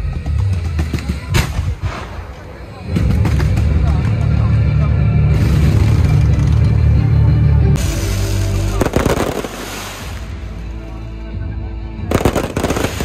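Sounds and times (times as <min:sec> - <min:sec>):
music: 0:00.0 - 0:13.0
fireworks and firecrackers: 0:00.2 - 0:04.5, 0:07.8 - 0:10.7, 0:12.1 - 0:13.0
rapid firecracker crackle: 0:07.8 - 0:10.7, 0:12.1 - 0:13.0.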